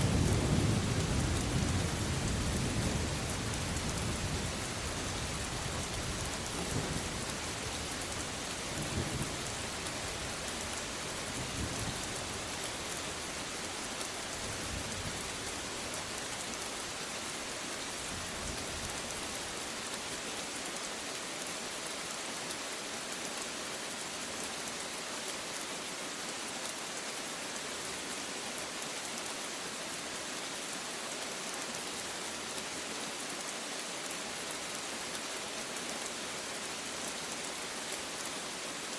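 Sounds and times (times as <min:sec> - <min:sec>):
low rolling thunder: 0:00.0 - 0:04.5
steady rain hissing: 0:00.0 - 0:38.9.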